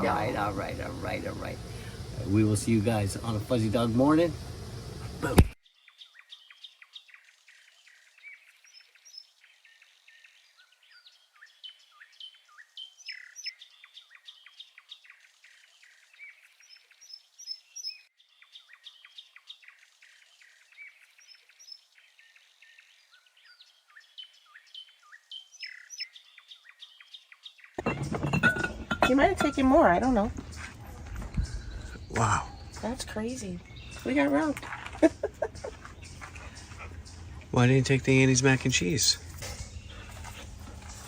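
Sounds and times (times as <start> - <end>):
songbirds chirping and trilling: 0.0 - 41.0.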